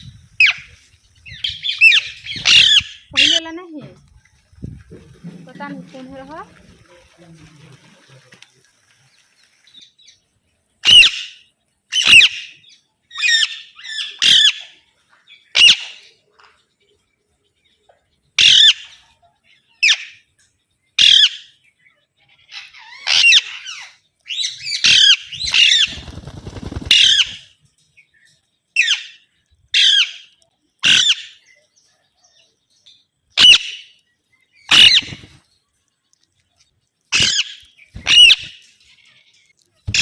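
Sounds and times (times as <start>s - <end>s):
parrot squawking: 1.4s - 3.5s, 10.8s - 12.5s, 13.2s - 14.7s, 18.4s - 18.9s, 22.5s - 25.9s, 29.8s - 31.4s, 33.4s - 33.8s, 34.7s - 35.2s, 37.1s - 38.6s
parrot rasping chatter: 1.6s - 3.5s, 22.5s - 23.9s.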